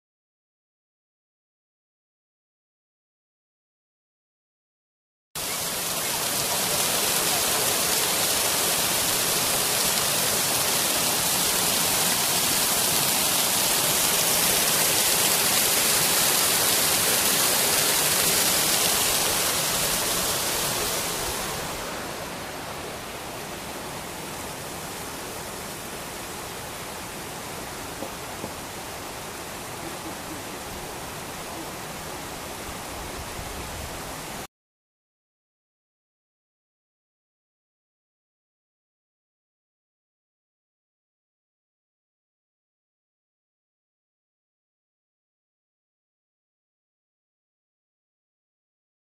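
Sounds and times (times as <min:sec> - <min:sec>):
rushing running water: 0:05.4 - 0:34.5.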